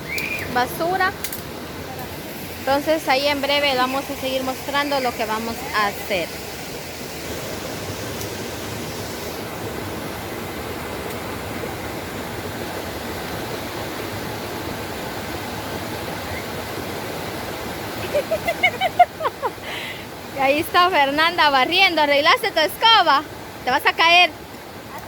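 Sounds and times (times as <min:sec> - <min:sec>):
flowing water rushing: 0:00.0 - 0:25.0.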